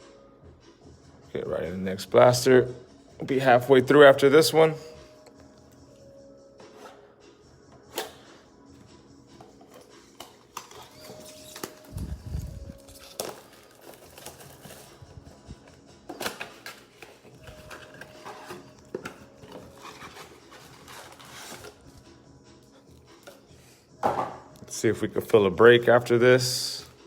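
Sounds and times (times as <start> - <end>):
crinkling plastic wrap: 10.8 - 15.1.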